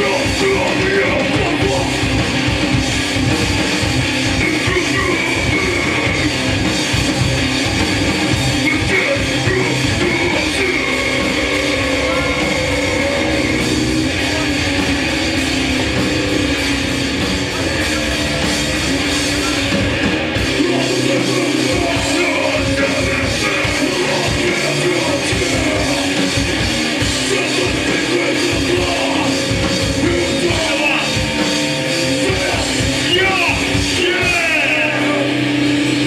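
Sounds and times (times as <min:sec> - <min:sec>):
distorted electric guitars: 0:00.0 - 0:36.0
drum kit: 0:00.0 - 0:36.0
shouted vocals: 0:08.6 - 0:14.5, 0:20.4 - 0:26.3, 0:32.0 - 0:35.4.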